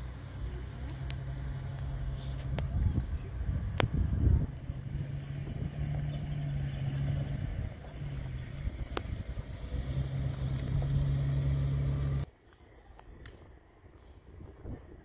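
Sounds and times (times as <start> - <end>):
low rumble: 0.0 - 12.3
vehicle engine idling: 0.0 - 12.3.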